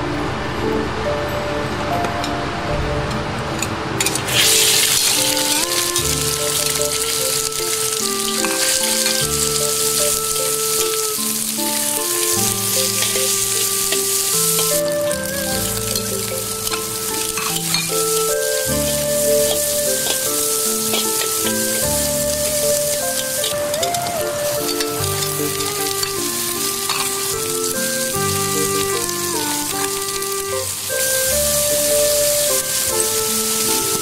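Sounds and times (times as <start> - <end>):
instrumental background music: 0.0 - 34.0
metal spatula stirring: 4.0 - 30.2
pork sizzling in a wok: 4.0 - 34.0.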